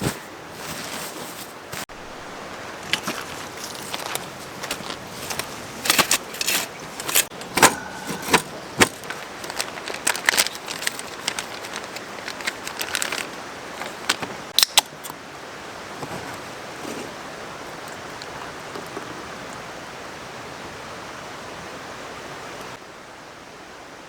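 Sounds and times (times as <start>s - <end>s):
mountain stream rushing: 0.0s - 24.0s
sharp clicks and metallic clatters: 2.9s - 15.2s.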